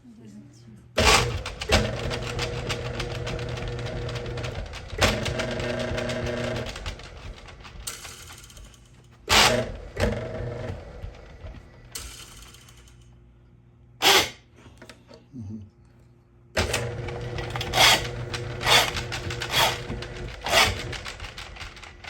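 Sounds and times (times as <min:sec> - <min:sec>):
drain snake motor hum: 0:16.6 - 0:21.9
cable rattling: 0:16.6 - 0:22.0
loud clattering knocks: 0:16.6 - 0:22.0.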